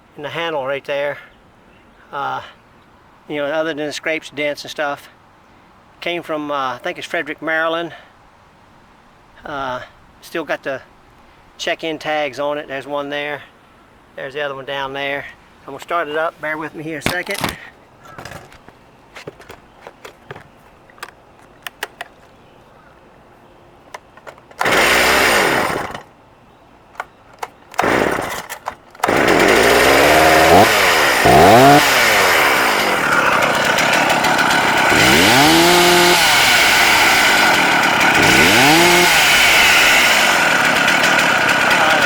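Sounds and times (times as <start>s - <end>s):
starter clicks: 16.9s - 22.4s, 23.9s - 26.1s, 26.9s - 41.8s
chainsaw engine revving: 17.1s - 17.6s, 24.6s - 26.1s, 27.8s - 42.0s.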